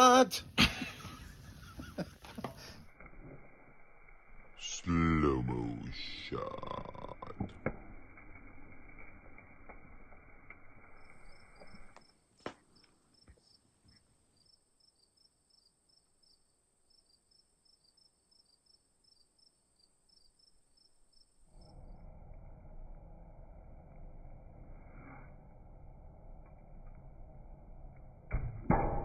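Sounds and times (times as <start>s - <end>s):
crickets chirping: 10.6s - 27.9s.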